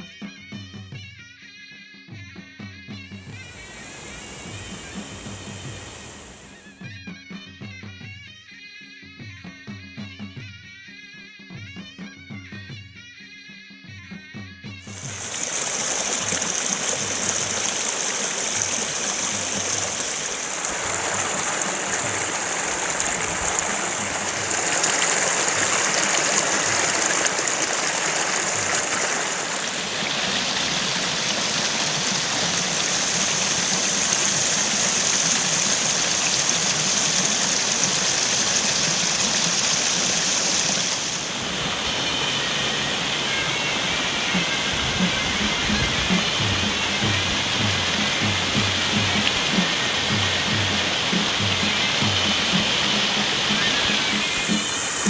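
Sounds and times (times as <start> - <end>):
waterfall rushing: 3.2 - 6.8, 14.9 - 55.0.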